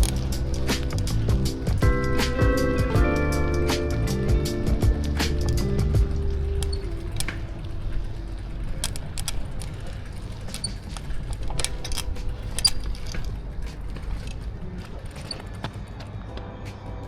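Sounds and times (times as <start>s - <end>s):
steady low rumble: 0.0s - 8.8s
bicycle clicks and rattles: 0.0s - 16.0s.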